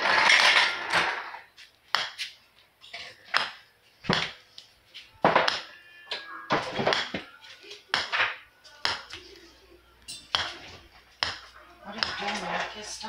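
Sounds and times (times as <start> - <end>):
dishes clinking and knocking: 5.2 - 7.3.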